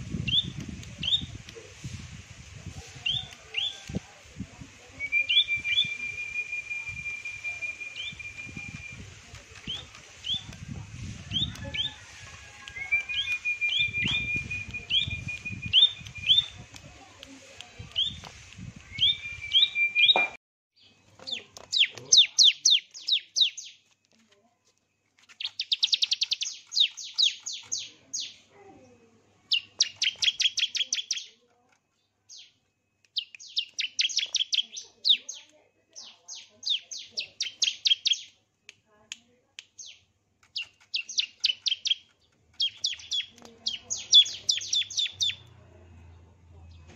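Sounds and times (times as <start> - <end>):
held bird whistle: 0.2 - 1.4, 5.0 - 10.6, 11.2 - 16.6, 18.0 - 20.4, 33.2 - 35.2
songbird chirping: 2.6 - 46.9
rapid chirping trills: 25.3 - 27.9, 29.5 - 31.3, 33.1 - 35.3, 39.8 - 45.4.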